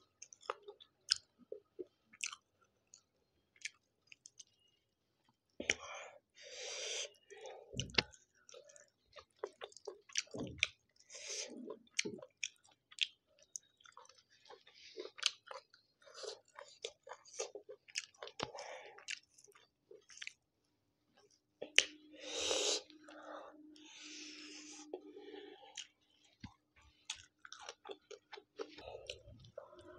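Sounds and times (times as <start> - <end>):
wet chewing: 0.2 - 4.7, 7.8 - 20.4, 24.8 - 29.9
mouth clicks and smacks: 7.7 - 11.1.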